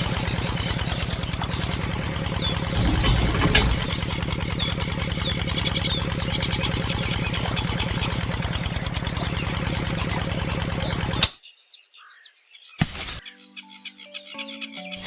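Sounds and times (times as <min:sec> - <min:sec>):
engine running at rapid beat: 0:00.0 - 0:11.3
birds chirping: 0:00.0 - 0:15.0.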